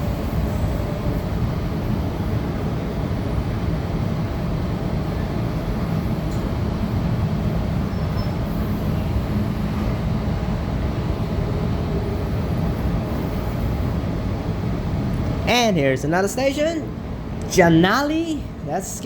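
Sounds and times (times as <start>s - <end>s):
train wheels rumbling on rail: 0.0s - 15.5s.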